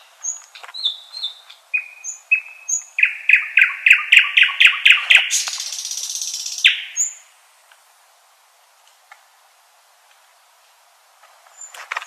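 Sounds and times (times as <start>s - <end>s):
nightingale singing: 0.0s - 7.3s.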